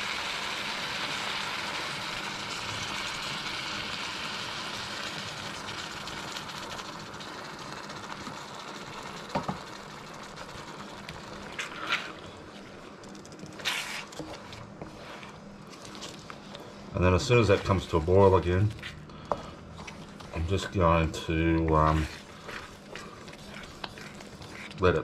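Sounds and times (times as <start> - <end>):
food sizzling in a wok: 0.0 - 12.6.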